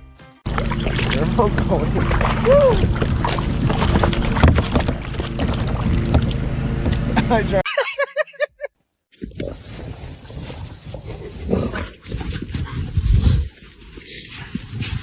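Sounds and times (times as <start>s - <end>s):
loud low surge: 0.5s - 7.6s
noisy background: 0.5s - 7.6s.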